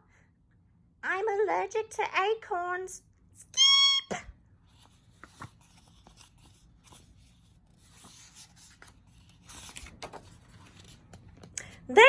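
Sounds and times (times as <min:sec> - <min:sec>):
paper rustling: 0:04.6 - 0:11.6.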